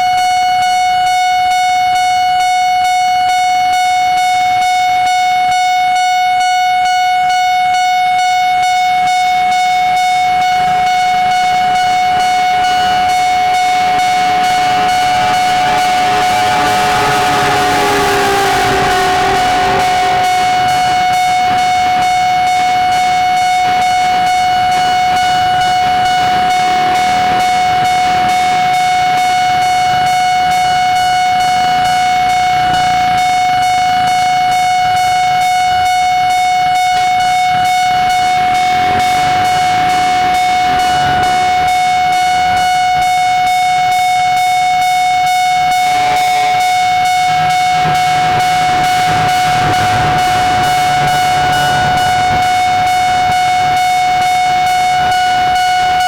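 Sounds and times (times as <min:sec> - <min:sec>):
level crossing warning bell: 0:00.0 - 0:56.0
train rumbling over rails: 0:11.3 - 0:34.0, 0:45.9 - 0:54.2.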